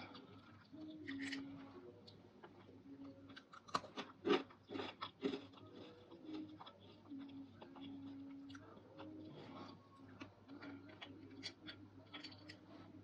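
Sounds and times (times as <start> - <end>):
soft chewing and crackles: 0.0 - 13.0
crisp crunching of dried fruit: 3.3 - 7.0.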